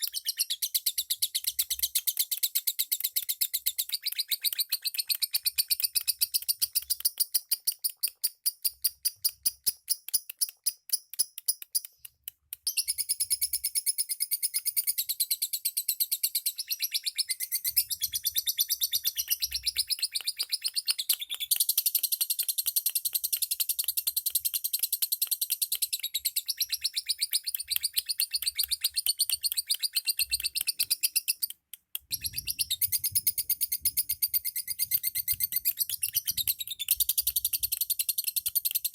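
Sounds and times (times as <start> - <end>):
lovebirds chirping: 25.5 - 38.9.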